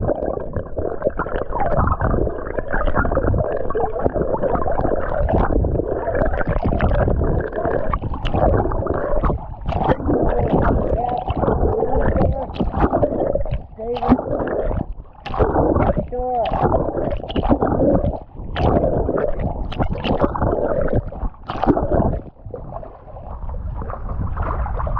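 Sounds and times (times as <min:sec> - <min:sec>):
wind buffeting microphone: 0:05.2 - 0:24.9.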